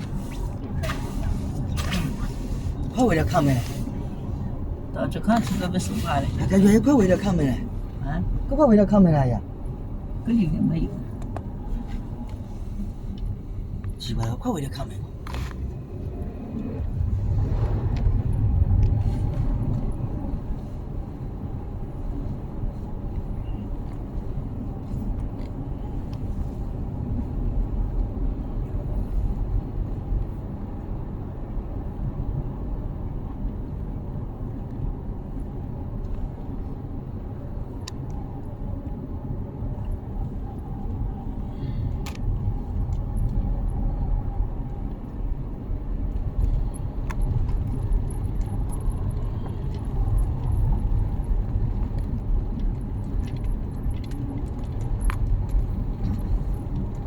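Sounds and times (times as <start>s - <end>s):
car engine and road noise: 0.0s - 57.0s
light clicks and rattles: 46.2s - 57.0s.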